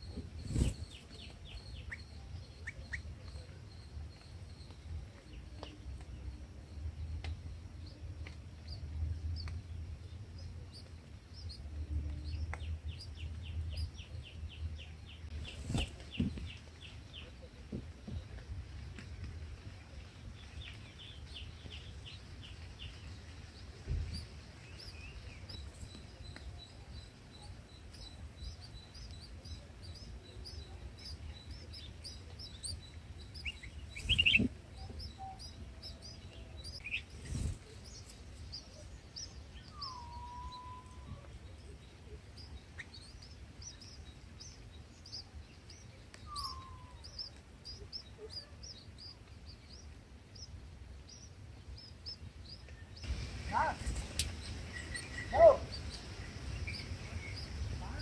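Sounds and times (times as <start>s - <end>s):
high bird chirps: 0.1s - 4.8s, 24.1s - 58.0s
lower slurred bird calls: 38.5s - 41.8s, 46.2s - 49.2s, 53.1s - 58.0s.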